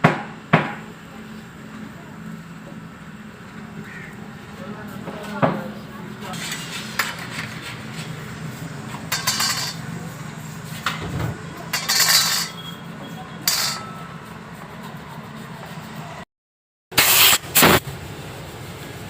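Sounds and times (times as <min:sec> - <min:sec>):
metal tools clinking and scraping: 0:08.9 - 0:10.0, 0:11.7 - 0:12.8, 0:13.4 - 0:14.2.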